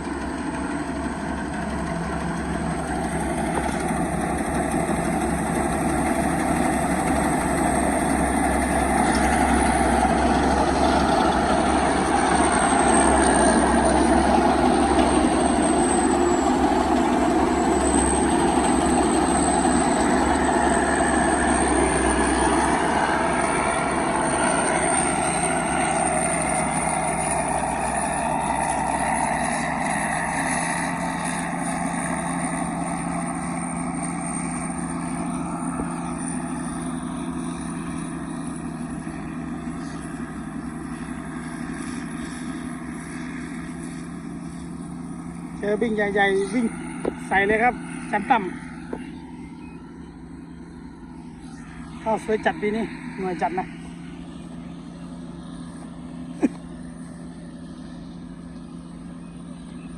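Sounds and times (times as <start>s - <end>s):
diesel engine running under load: 0.0s - 59.9s
thin high whine: 1.0s - 59.9s.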